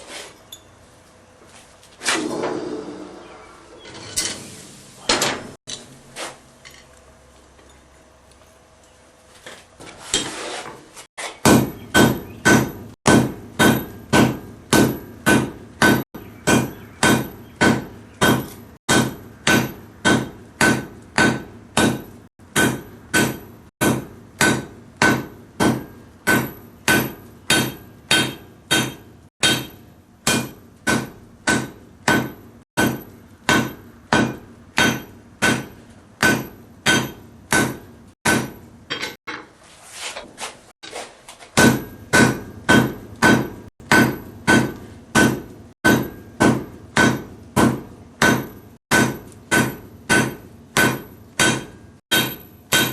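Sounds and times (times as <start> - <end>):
hammer striking metal on anvil: 11.4 - 39.5, 41.6 - 52.9.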